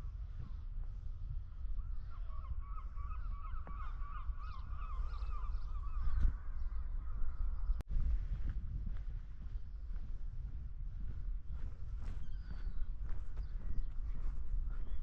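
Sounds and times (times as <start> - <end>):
low rumble of wind: 0.0 - 15.0
flock of birds chattering: 1.9 - 7.8.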